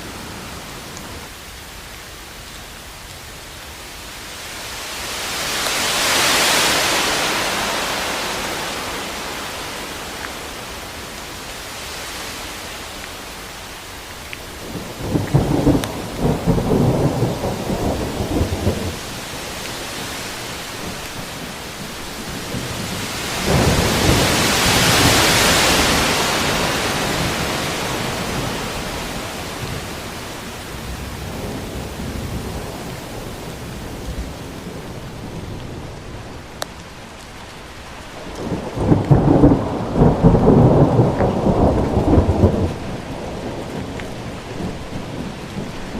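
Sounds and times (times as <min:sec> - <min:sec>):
rain hiss: 0:00.0 - 0:45.9
thunder rumbling: 0:14.4 - 0:37.0, 0:37.6 - 0:45.9.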